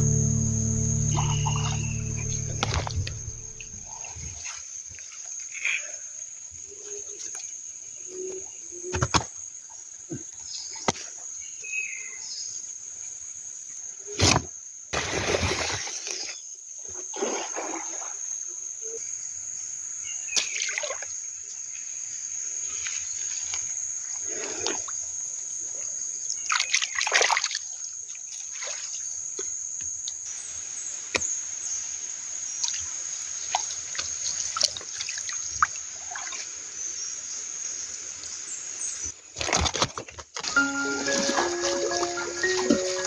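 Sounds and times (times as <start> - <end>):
high-pitched hum: 0.0 - 4.2, 40.6 - 43.0
river water splashing: 40.5 - 43.0.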